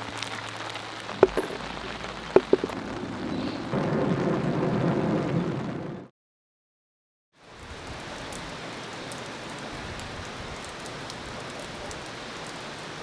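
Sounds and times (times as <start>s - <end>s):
rain falling: 0.0s - 6.0s, 7.4s - 13.0s
drops ticking on a surface: 1.2s - 1.6s, 2.4s - 2.8s.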